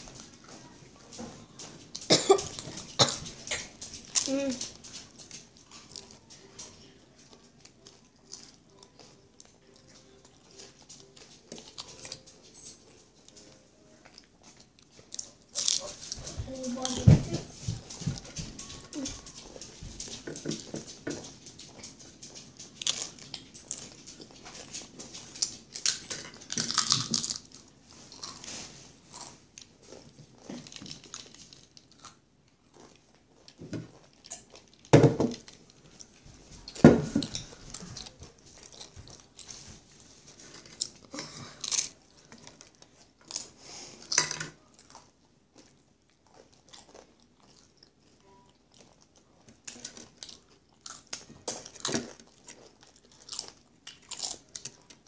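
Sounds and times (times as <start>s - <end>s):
chips being crunched and chewed: 22.6s - 35.7s, 40.5s - 55.0s.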